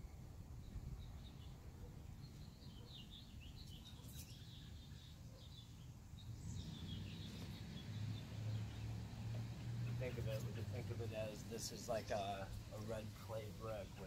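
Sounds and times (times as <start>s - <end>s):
faint bird chirps: 0.0s - 9.0s.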